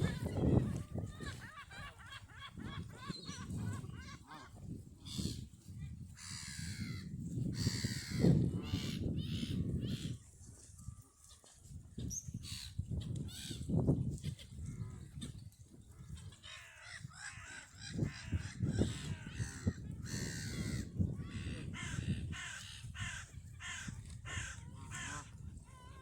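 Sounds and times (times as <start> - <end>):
birds giving harsh calls: 0.0 - 4.5, 16.1 - 25.4.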